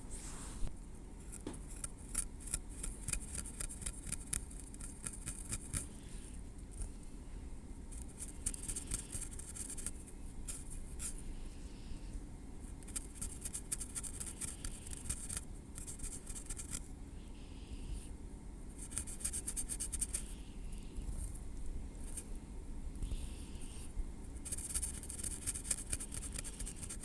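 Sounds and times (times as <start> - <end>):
tweezers scratching on scalp: 1.2 - 6.9, 7.9 - 11.2, 12.6 - 16.9, 18.7 - 21.4, 23.0 - 27.0.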